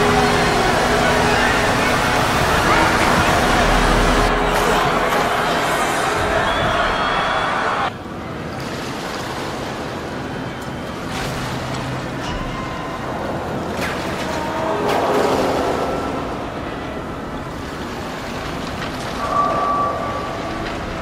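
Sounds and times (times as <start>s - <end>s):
high drawn-out metal tone: 0.0s - 7.9s
straining metal groans and creaks: 0.0s - 7.9s, 10.6s - 21.0s
rushing water: 0.0s - 21.0s.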